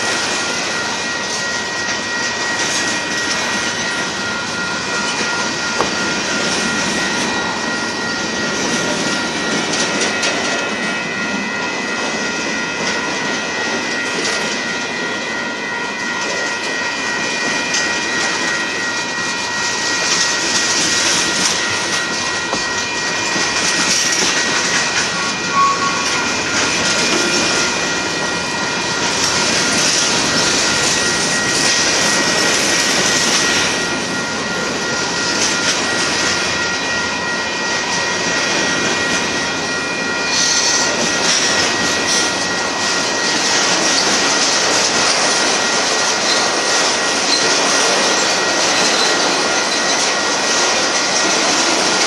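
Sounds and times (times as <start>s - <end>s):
freight train cars rolling: 0.0s - 52.0s
high-pitched tones: 20.9s - 32.2s.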